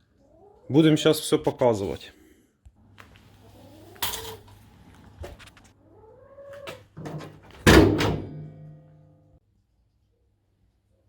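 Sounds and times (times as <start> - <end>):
door thunk: 7.0 - 8.8.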